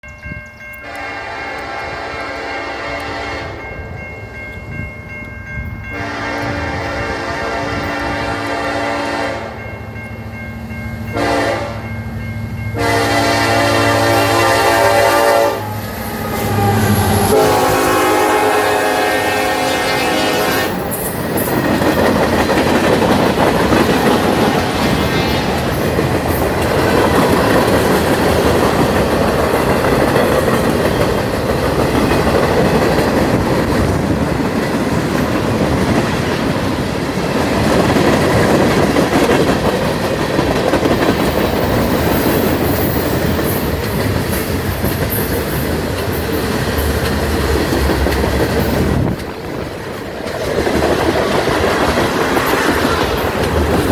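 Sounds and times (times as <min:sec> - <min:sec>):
train horn blast: 0:00.8 - 0:03.7, 0:05.9 - 0:09.6, 0:11.1 - 0:11.9, 0:12.8 - 0:20.9
train wheels clattering: 0:10.0 - 0:53.9.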